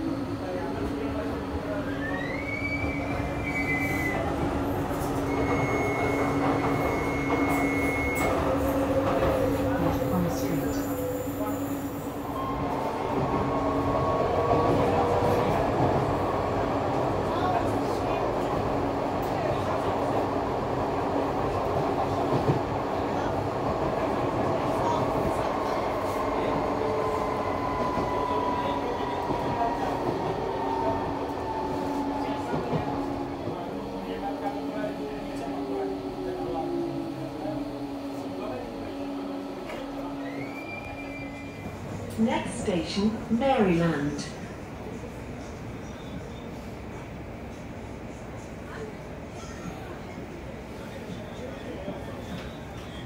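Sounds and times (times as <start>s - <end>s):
train rumble and hum: 0.0s - 53.0s.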